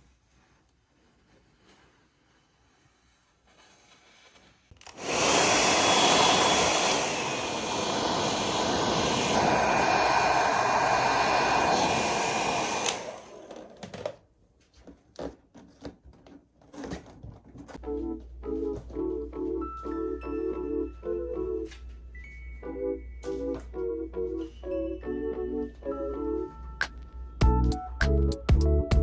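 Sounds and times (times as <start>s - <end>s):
electric fan appliance running: 4.8s - 14.0s.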